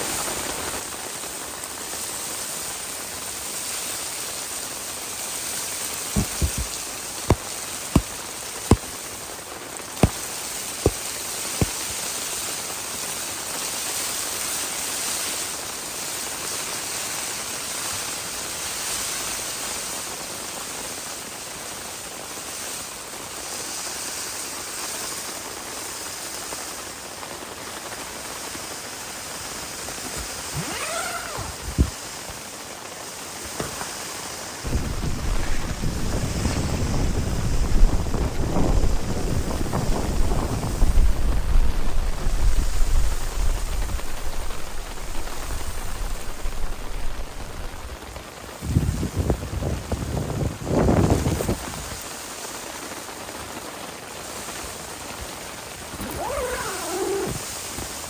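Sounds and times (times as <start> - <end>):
heavy rain hissing: 0.0 - 58.0
sharp taps: 6.2 - 8.1.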